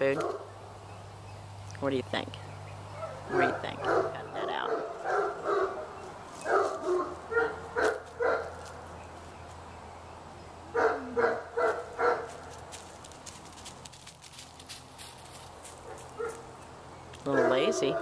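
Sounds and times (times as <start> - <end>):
dog barking: 0.1 - 0.5, 3.0 - 8.6, 10.7 - 12.4, 15.8 - 16.4, 17.3 - 18.0.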